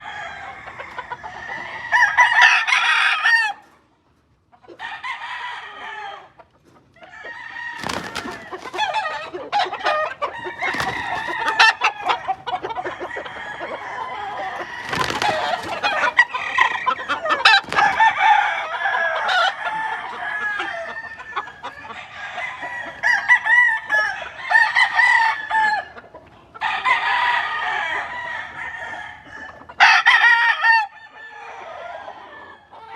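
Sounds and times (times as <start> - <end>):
roosters crowing: 0.0 - 3.8, 4.7 - 26.0, 26.6 - 32.9
chickens clucking: 0.1 - 24.4, 25.2 - 26.9.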